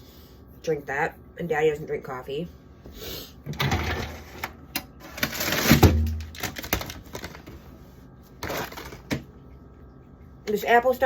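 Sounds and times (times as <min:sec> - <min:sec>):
containers handled in a refrigerator: 0:03.4 - 0:09.4.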